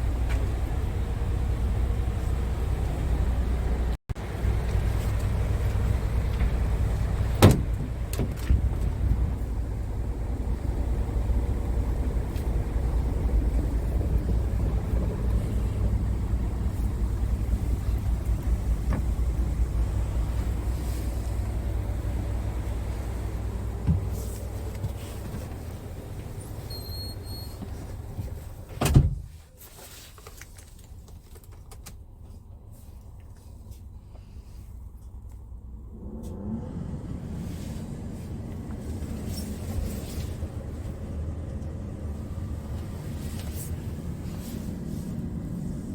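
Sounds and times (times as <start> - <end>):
diesel engine idling: 0.0 - 28.7
truck door shutting: 7.4 - 9.0, 28.8 - 29.3.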